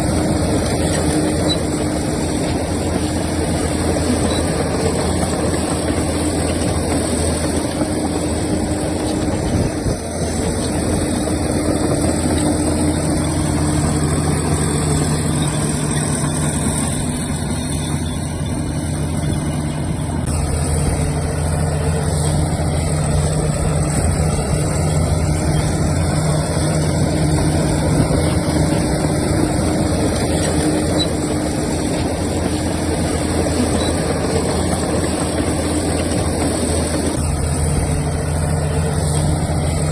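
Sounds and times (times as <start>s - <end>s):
extra engine note: 0.0s - 39.9s
heavy diesel engines running: 0.0s - 39.9s.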